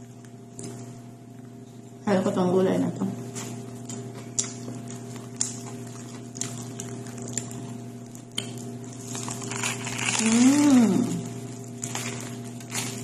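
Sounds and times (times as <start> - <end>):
electrical hum: 0.0 - 13.0
chewing crusty bread: 3.3 - 13.0
crust crackling: 4.5 - 13.0.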